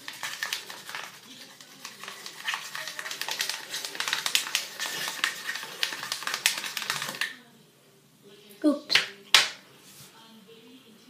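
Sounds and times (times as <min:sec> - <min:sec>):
slime stirred in a container: 0:00.0 - 0:07.4.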